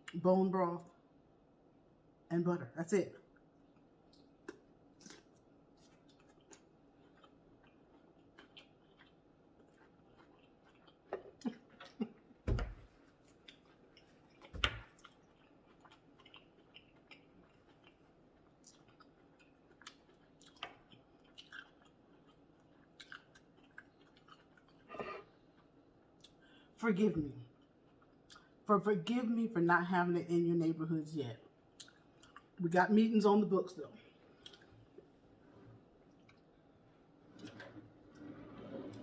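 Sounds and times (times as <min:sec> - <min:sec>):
person chewing food: 0:03.3 - 0:12.3, 0:12.9 - 0:26.7, 0:27.5 - 0:28.6, 0:31.4 - 0:32.6, 0:34.2 - 0:36.8.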